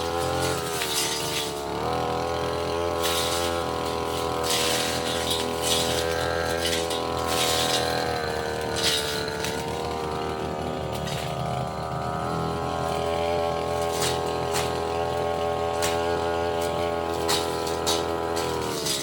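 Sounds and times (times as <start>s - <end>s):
brush cutter engine running: 0.0s - 19.0s
cutting head striking wood: 12.7s - 19.0s.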